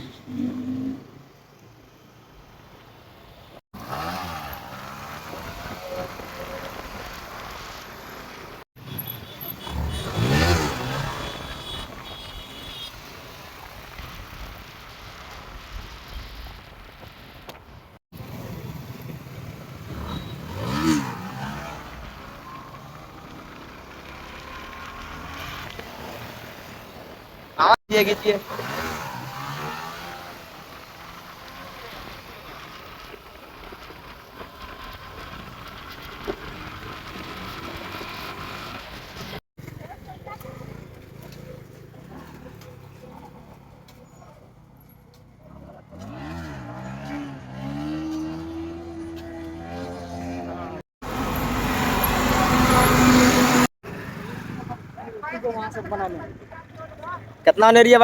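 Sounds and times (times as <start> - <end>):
road noise: 0.0 - 58.0
motorcycle engine revving: 3.8 - 7.8, 8.8 - 14.5, 18.2 - 27.3, 28.0 - 44.8, 45.4 - 55.1.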